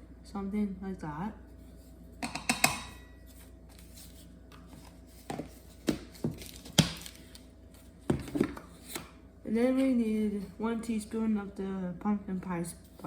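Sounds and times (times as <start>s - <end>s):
kitchen utensils knocking and clicking: 2.2s - 3.0s.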